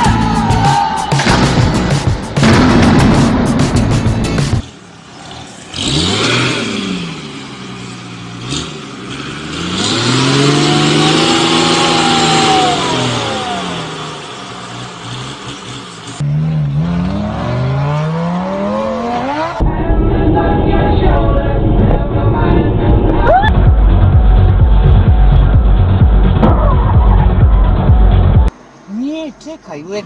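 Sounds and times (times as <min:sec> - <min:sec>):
engine climbing in pitch: 0:00.0 - 0:28.5
engine revving with hiss: 0:05.1 - 0:16.2.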